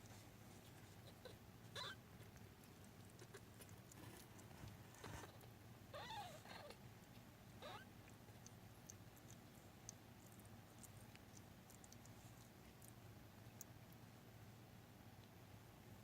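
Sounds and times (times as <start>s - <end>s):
soft ticks of movement: 2.0s - 5.6s, 6.4s - 14.1s.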